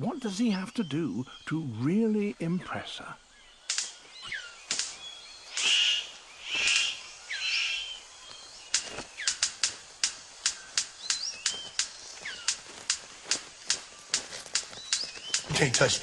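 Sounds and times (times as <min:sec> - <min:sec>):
harsh rasping bird calls: 0:00.0 - 0:16.0
thin whistled bird chirps: 0:03.3 - 0:09.5, 0:10.4 - 0:12.6, 0:14.0 - 0:15.5
sharp bird clicks: 0:03.5 - 0:16.0.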